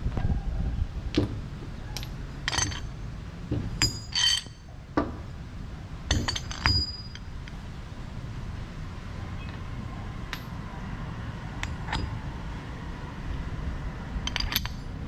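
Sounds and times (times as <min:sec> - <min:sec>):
steady low rumble: 0:00.0 - 0:15.0
metal tools clinking: 0:01.9 - 0:03.0, 0:03.8 - 0:04.7, 0:06.1 - 0:07.3, 0:11.6 - 0:12.1, 0:14.2 - 0:14.9.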